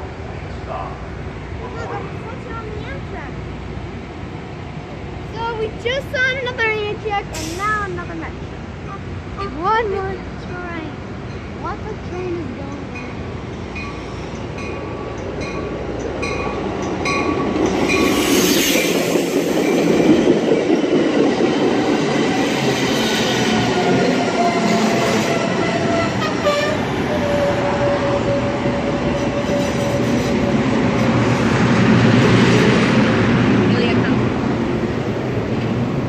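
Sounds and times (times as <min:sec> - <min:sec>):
train rumbling past: 0:00.0 - 0:36.0
train brakes squealing: 0:17.2 - 0:20.4, 0:22.0 - 0:31.2.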